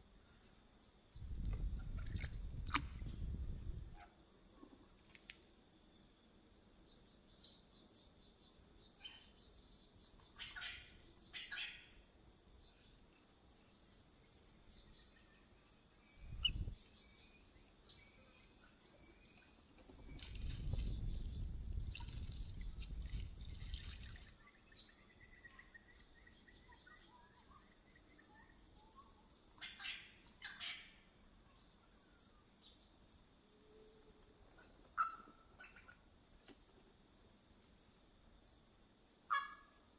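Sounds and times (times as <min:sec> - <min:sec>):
wild birds calling: 0:16.1 - 0:17.2, 0:34.5 - 0:36.1, 0:39.3 - 0:39.8
fast high-pitched chirping: 0:16.2 - 0:16.8.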